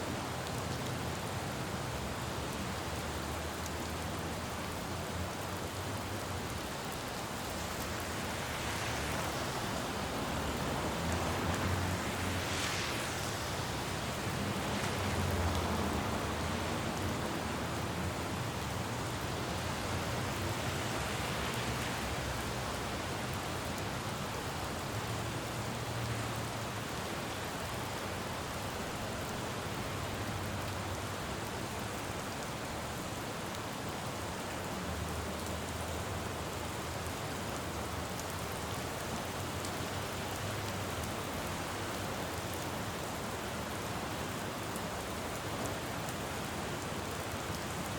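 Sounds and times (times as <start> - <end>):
rain falling on a road: 0.0 - 47.9
passing traffic rumble: 4.2 - 23.4.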